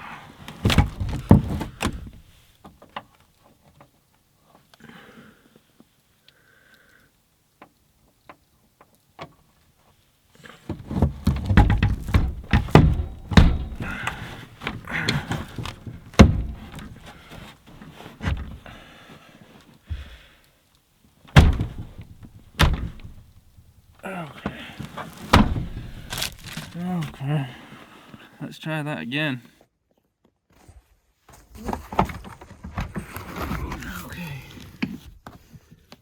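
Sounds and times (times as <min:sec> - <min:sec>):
thuds and knocks on tailgate: 0:10.7 - 0:17.0, 0:21.4 - 0:23.2, 0:25.3 - 0:26.6.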